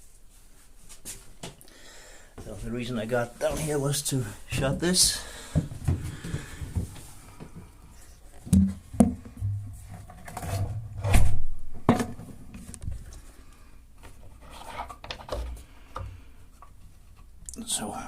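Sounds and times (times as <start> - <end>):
heavy thump: 8.5 - 9.9.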